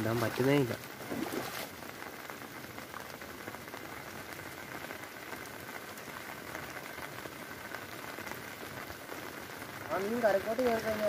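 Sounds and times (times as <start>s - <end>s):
rain patter: 0.0s - 11.0s.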